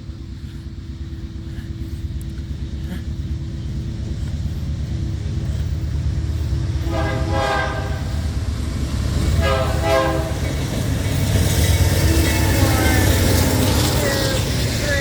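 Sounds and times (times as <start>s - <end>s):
diesel freight train rumble: 0.0s - 15.0s
hissing wheel and rail noise: 0.0s - 15.0s
locomotive air horn blasts: 6.8s - 8.2s, 9.4s - 10.4s.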